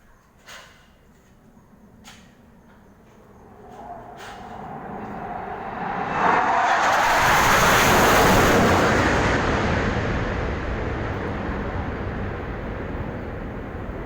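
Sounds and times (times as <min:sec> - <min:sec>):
aircraft engine roar: 0:03.0 - 0:14.0.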